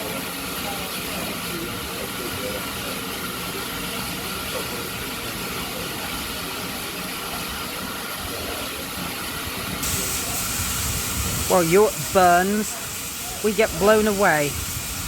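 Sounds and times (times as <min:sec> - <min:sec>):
steam engine hissing: 0:01.0 - 0:15.0
wind on microphone: 0:09.8 - 0:12.2, 0:14.0 - 0:15.0.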